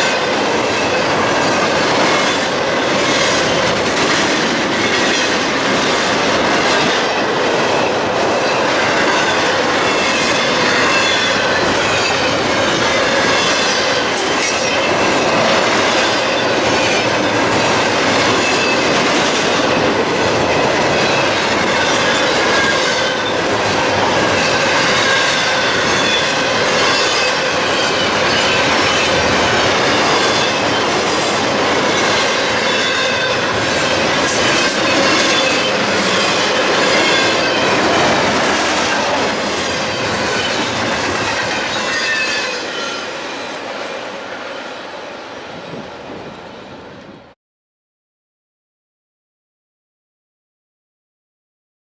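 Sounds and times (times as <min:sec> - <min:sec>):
train wheels rumbling on rail: 0:00.0 - 0:47.4
wheels squealing: 0:08.5 - 0:19.7, 0:20.4 - 0:43.6.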